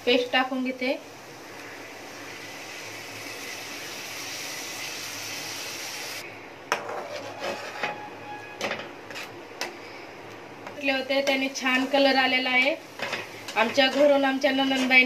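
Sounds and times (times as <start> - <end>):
food sizzling in hot oil: 0.0 - 6.2, 10.7 - 15.0
spoon stirring against pan: 6.7 - 9.8, 10.6 - 15.0.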